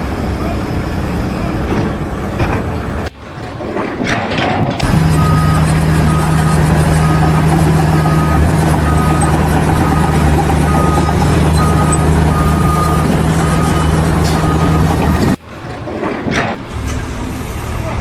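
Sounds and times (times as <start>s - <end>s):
heavy vehicle engine running: 0.0s - 18.0s
reversing alarm beeping: 4.7s - 15.5s.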